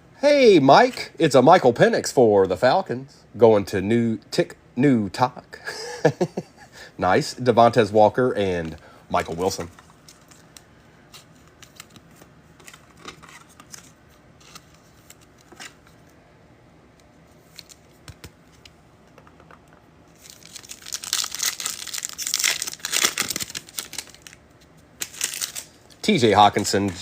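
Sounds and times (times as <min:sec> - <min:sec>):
card wrapper tearing and crinkling: 0:20.2 - 0:24.4, 0:25.0 - 0:27.0.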